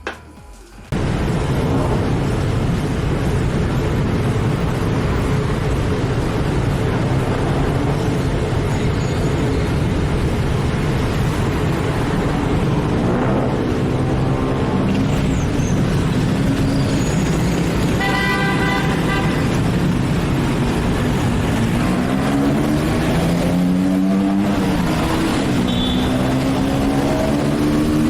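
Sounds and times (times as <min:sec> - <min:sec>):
motorbike engine revving: 0:09.6 - 0:28.0
vehicle horn honking: 0:18.0 - 0:19.6, 0:25.6 - 0:26.2.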